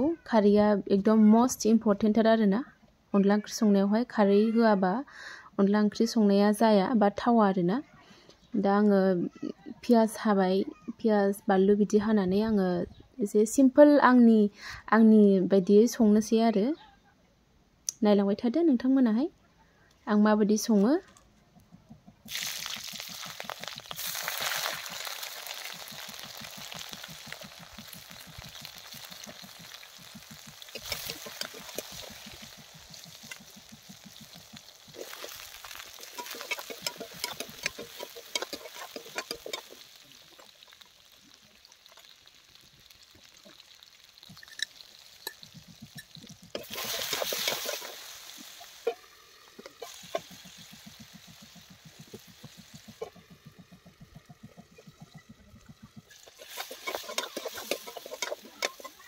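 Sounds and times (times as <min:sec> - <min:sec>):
potatoes sizzling in oil: 0:22.2 - 0:59.0
ladle scraping pan: 0:28.6 - 0:40.0, 0:44.4 - 0:53.7, 0:54.6 - 0:59.0.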